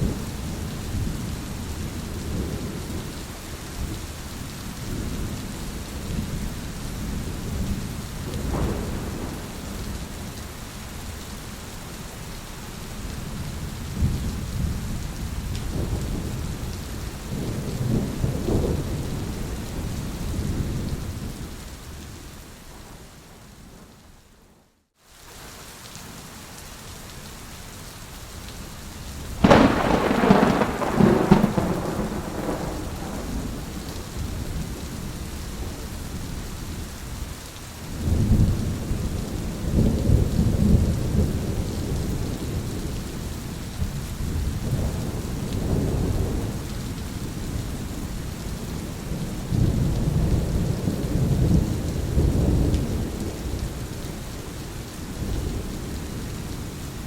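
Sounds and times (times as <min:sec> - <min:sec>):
low rolling thunder rumbles: 0:00.0 - 0:04.0, 0:04.8 - 0:10.5, 0:13.2 - 0:24.0, 0:29.4 - 0:37.2, 0:37.9 - 0:56.7
steady rain: 0:00.0 - 0:57.0
thunderclap: 0:08.3 - 0:09.9, 0:29.4 - 0:34.6.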